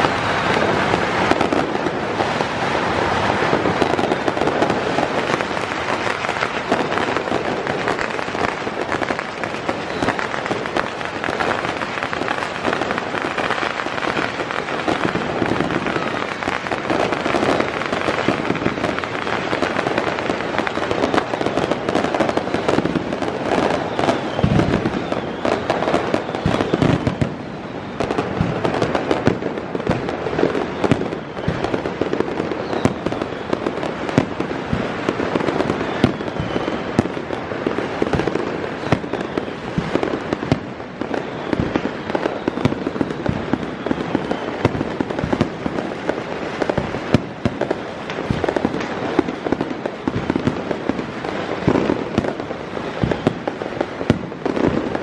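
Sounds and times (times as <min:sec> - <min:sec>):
deep firework booms: 0:00.0 - 0:55.0
fireworks crackling and popping: 0:00.0 - 0:55.0.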